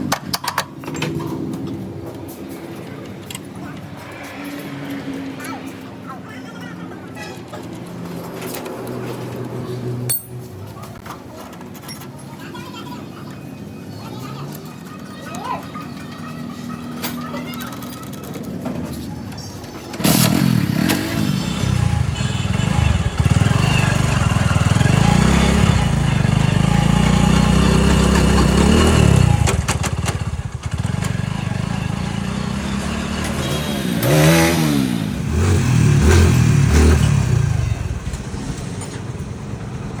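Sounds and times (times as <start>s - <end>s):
vehicle engine starting and revving: 19.8s - 40.0s.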